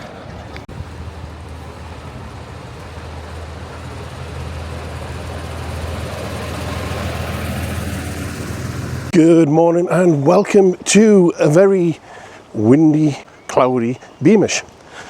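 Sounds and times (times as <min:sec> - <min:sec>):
wind noise: 0:00.0 - 0:09.1
vehicle engine running: 0:00.0 - 0:09.2.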